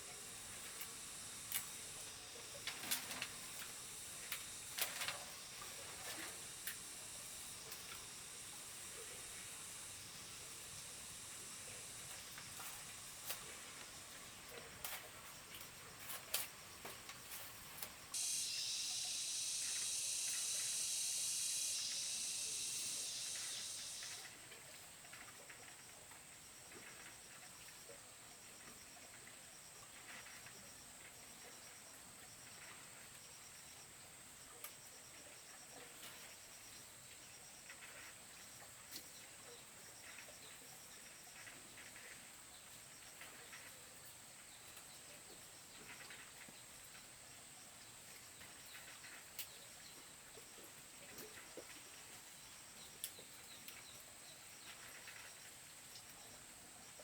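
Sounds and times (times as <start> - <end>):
loud high insect buzz: 0.0 - 14.7, 18.1 - 24.4
pulsed insect chirping: 0.0 - 14.8, 18.1 - 24.5
thin high insect drone: 0.0 - 27.7.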